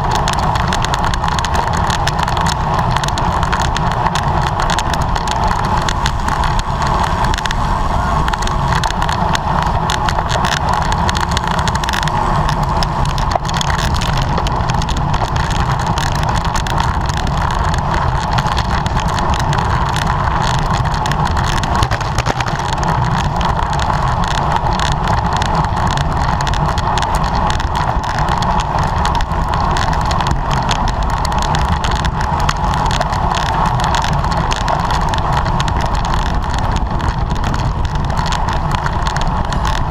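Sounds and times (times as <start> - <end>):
wind rushing: 0.0 - 24.1
fine crackle: 0.0 - 39.9
road noise: 0.0 - 39.9.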